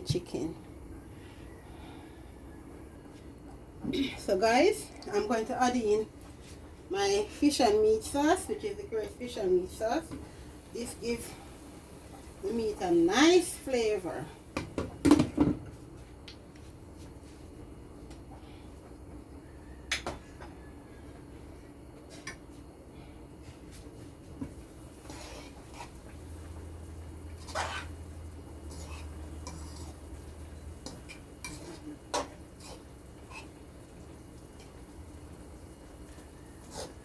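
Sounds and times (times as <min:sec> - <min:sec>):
utensil scraping a cooking pot: 0:24.9 - 0:34.9, 0:36.3 - 0:37.0.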